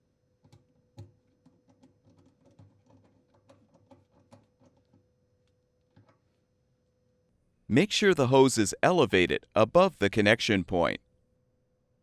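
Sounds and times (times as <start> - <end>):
faint steady hum: 4.1 - 12.0.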